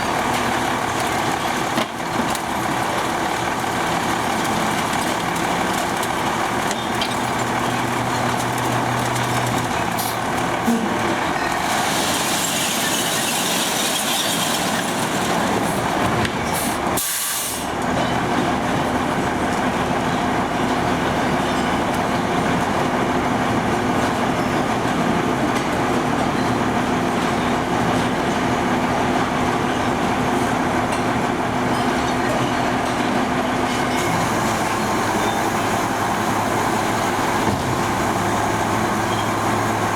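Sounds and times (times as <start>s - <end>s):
truck engine running: 0.0s - 17.0s, 17.6s - 39.9s
hiss: 16.6s - 17.7s.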